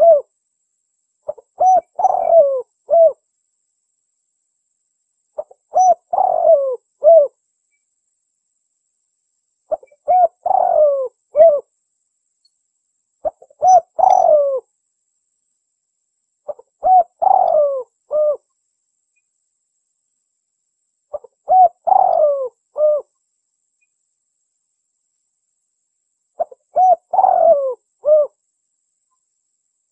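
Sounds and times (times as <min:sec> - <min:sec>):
dove cooing: 0:00.0 - 0:00.3, 0:01.3 - 0:03.2, 0:05.4 - 0:07.4, 0:09.7 - 0:11.7, 0:13.2 - 0:14.7, 0:16.5 - 0:18.5, 0:21.1 - 0:23.1, 0:26.4 - 0:28.4.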